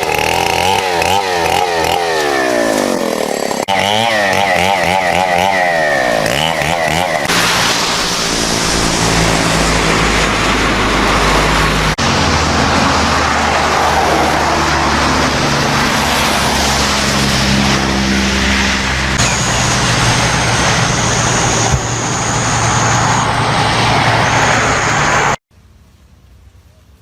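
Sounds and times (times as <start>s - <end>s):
engines running: 0.0s - 26.6s
heavy noise wash: 5.6s - 27.0s.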